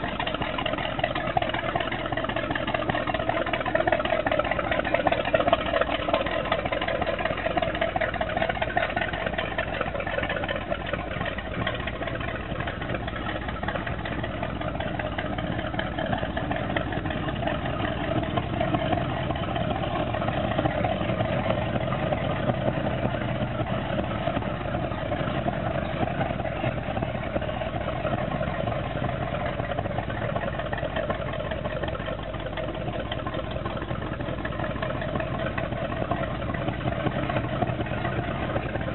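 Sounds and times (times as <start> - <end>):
boat engine idling: 0.0 - 38.9.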